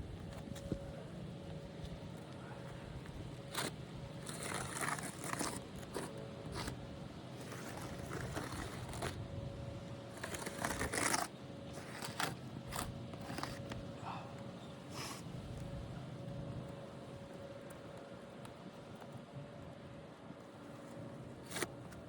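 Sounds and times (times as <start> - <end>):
scraping on gritty roof shingles: 0.1 - 16.5.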